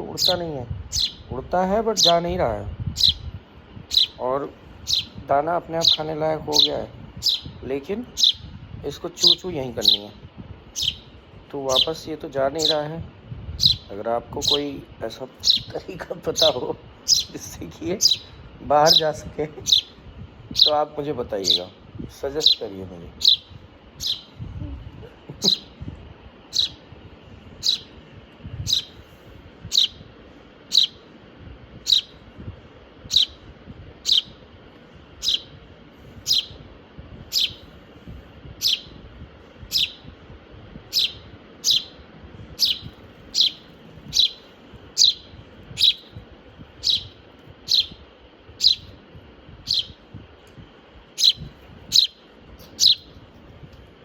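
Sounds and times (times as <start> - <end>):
young bird chirping: 0.0 - 8.6, 9.2 - 12.9, 13.6 - 21.8, 22.4 - 24.4, 25.4 - 25.8, 26.4 - 26.8, 27.6 - 28.0, 28.6 - 29.0, 29.6 - 30.1, 30.7 - 31.1, 31.8 - 32.2, 33.0 - 34.4, 35.2 - 35.6, 36.2 - 36.7, 37.3 - 37.7, 38.6 - 39.0, 39.6 - 40.1, 40.9 - 46.2, 46.8 - 49.0, 49.6 - 50.0, 51.1 - 53.2.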